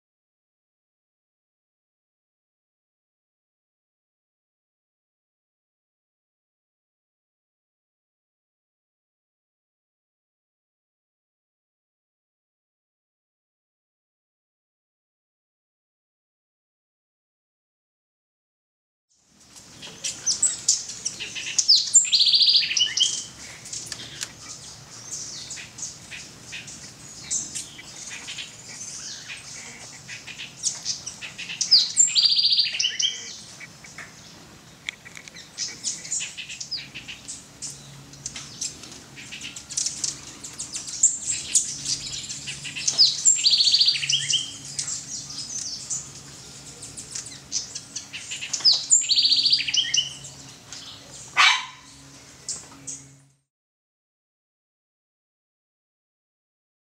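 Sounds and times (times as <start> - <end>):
birds chattering: 19.4 - 53.3.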